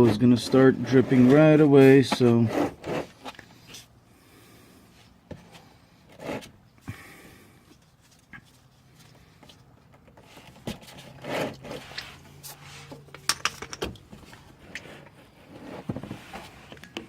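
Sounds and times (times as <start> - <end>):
scrapes and light knocks: 0.0 - 3.9, 7.7 - 17.0.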